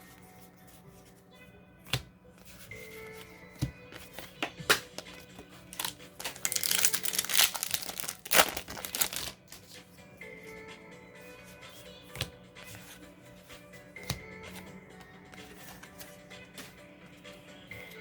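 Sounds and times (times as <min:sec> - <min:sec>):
faint background music: 0:00.0 - 0:18.0
foil wrapper crinkling and tearing: 0:05.7 - 0:09.5.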